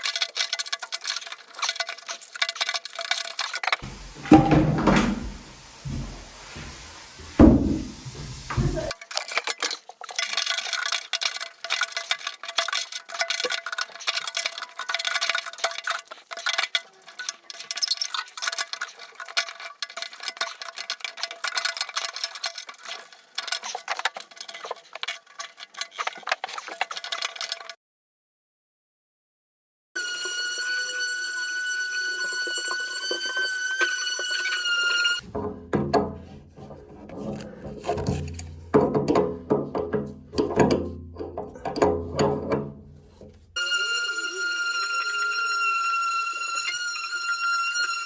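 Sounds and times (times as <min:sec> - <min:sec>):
rapid thin clinking and clattering: 0:00.0 - 0:04.4, 0:08.4 - 0:27.8
heavy knock: 0:03.8 - 0:08.9.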